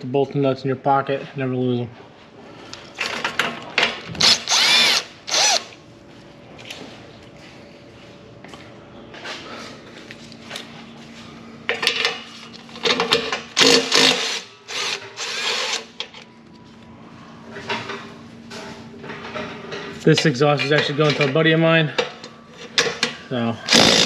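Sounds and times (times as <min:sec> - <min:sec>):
power tool spinning bolts: 0:04.2 - 0:05.7, 0:13.5 - 0:15.9, 0:23.7 - 0:24.0.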